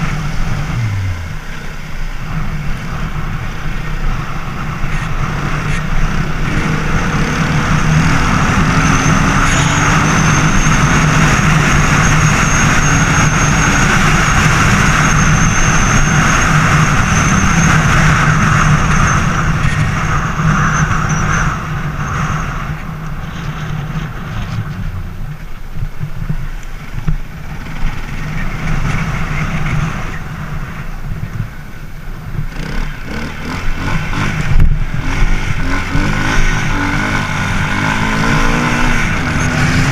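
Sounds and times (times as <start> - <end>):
thin high whine: 0.0 - 22.6
motorcycle engine running: 0.0 - 39.9.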